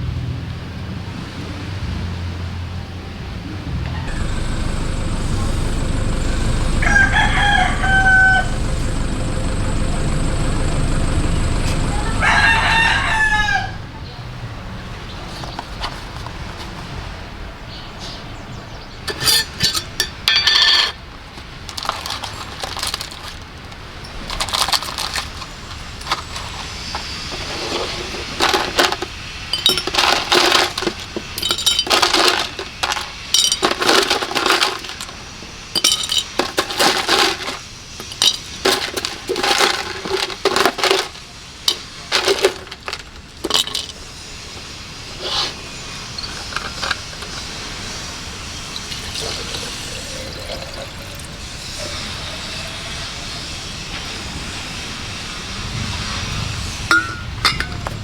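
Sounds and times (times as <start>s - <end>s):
hard objects clinking and clattering: 4.1s - 13.1s, 19.1s - 44.6s, 45.2s - 47.8s, 56.9s - 58.0s.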